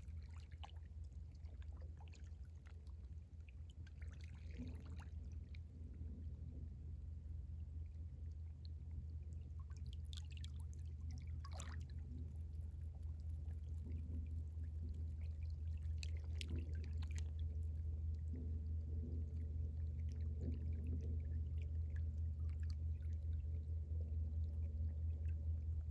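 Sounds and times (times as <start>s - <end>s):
water moving along shore: 0.0s - 5.6s, 9.5s - 23.2s
water splashes: 0.0s - 5.6s, 9.3s - 18.4s
water trickling and gurgling: 0.0s - 5.7s, 7.8s - 25.9s
low rumble: 0.0s - 25.9s.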